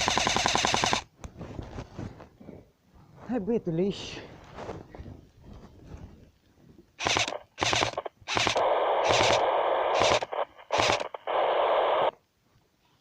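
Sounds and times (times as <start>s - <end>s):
loud radio bursts: 7.0s - 12.2s
radio static crackle: 7.0s - 12.2s.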